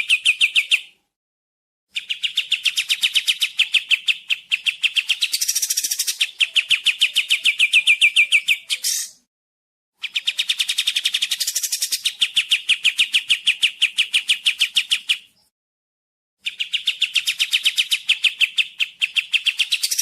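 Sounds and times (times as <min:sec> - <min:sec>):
songbird trilling: 0:02.0 - 0:09.2, 0:10.0 - 0:15.3, 0:16.4 - 0:20.0.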